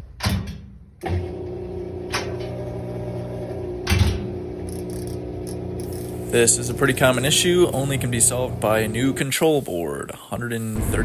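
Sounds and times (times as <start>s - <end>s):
washing machine drain pump humming: 1.0s - 9.7s.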